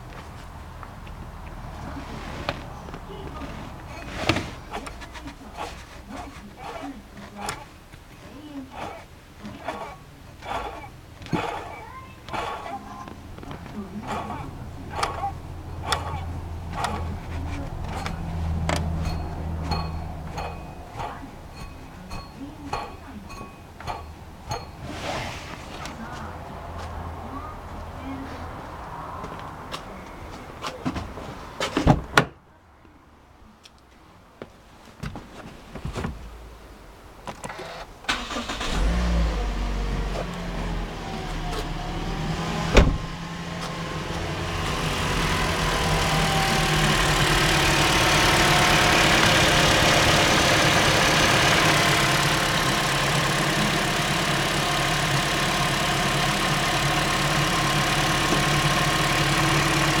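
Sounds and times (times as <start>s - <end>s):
car engine starting and running: 0.0s - 29.9s, 36.7s - 60.0s
engine hissing noise: 8.7s - 22.5s, 23.3s - 26.0s, 37.6s - 60.0s.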